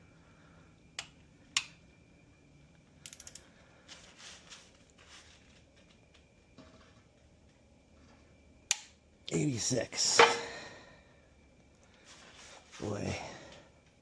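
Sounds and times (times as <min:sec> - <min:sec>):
ratchet clicks: 0:03.0 - 0:03.4
sharp metal clicks: 0:03.0 - 0:03.4, 0:08.7 - 0:09.0
soft scrapes: 0:03.9 - 0:05.6.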